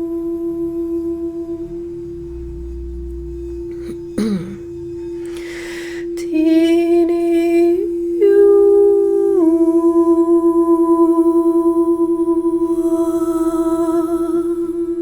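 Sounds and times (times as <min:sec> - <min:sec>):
singing bowl ringing: 0:00.6 - 0:15.0
person humming: 0:03.7 - 0:15.0.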